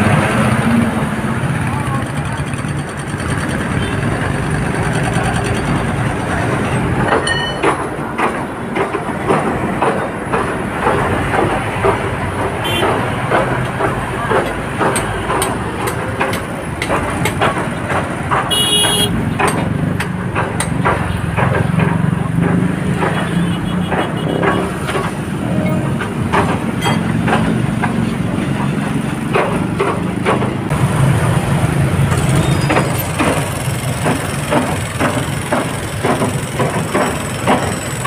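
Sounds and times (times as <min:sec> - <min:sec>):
road traffic rumbling: 0:00.0 - 0:38.0
high-pitched horn toot: 0:18.5 - 0:19.2.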